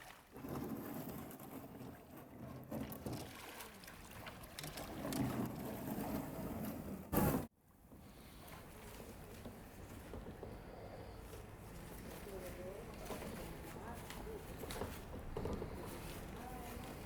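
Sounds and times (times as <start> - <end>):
water splashing around kayak: 0.0 - 6.8.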